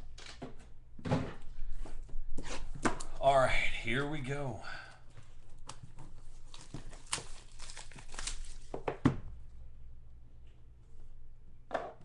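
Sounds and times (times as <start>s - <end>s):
packaging crinkling and tearing: 5.7s - 8.8s.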